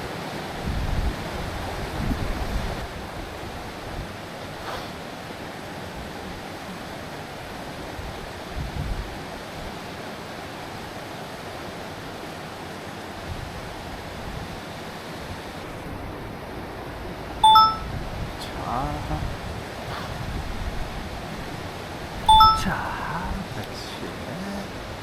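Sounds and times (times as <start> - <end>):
stream rushing: 0.0 - 25.0
high-pitched tone: 17.4 - 17.9, 22.3 - 23.0.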